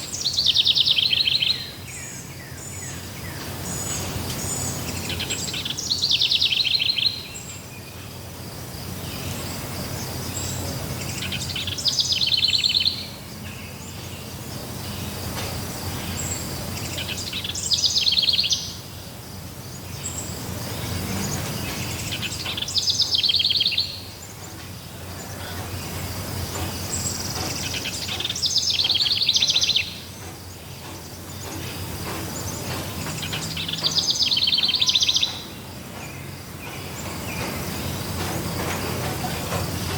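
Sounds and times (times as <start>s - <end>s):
songbird trilling: 0.0s - 8.3s, 8.9s - 15.2s, 15.9s - 39.9s
faint high insect drone: 0.0s - 39.9s
forest background hiss: 0.0s - 39.9s.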